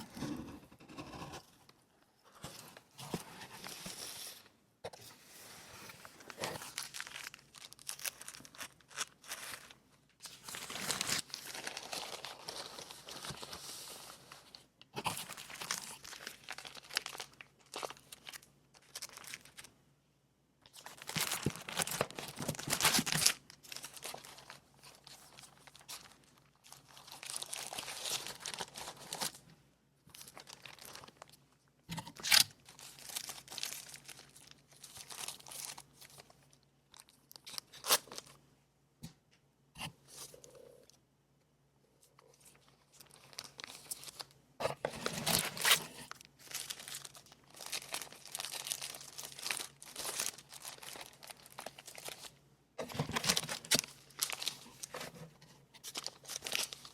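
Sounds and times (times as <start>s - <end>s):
packaging crinkling and tearing: 6.2s - 13.9s, 15.0s - 19.7s, 20.6s - 29.4s, 30.1s - 31.4s, 32.1s - 38.4s, 42.3s - 56.9s.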